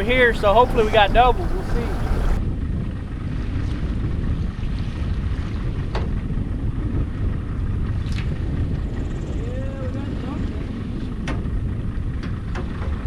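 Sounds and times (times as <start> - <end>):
boat engine rumble: 0.0 - 2.4
wind buffeting microphone: 0.0 - 2.4.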